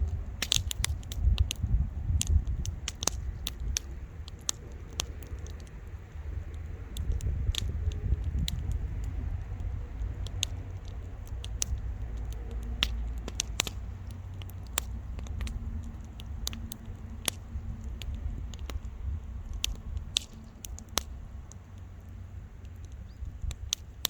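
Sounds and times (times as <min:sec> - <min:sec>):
bonfire crackling: 0:00.0 - 0:24.0
burning wood popping: 0:00.0 - 0:24.0
low steady rumble: 0:00.0 - 0:24.0.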